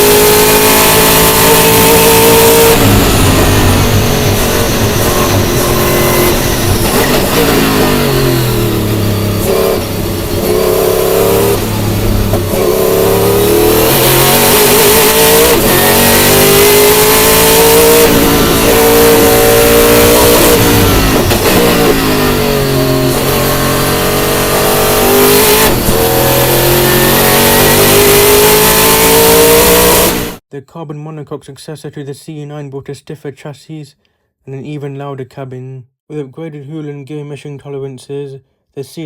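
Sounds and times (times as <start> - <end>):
race car engine at full speed: 0.0 - 30.4.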